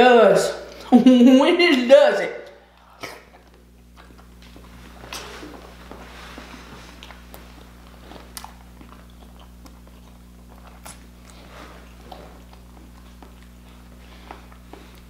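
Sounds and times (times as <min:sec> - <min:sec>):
person chewing food: 0:02.7 - 0:15.0
mouth smacks and clicks: 0:07.0 - 0:11.4.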